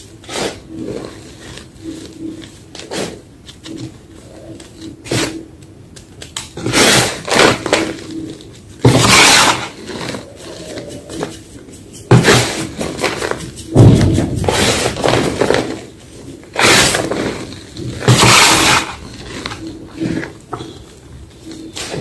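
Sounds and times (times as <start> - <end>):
chalk crunching: 6.6 - 20.3.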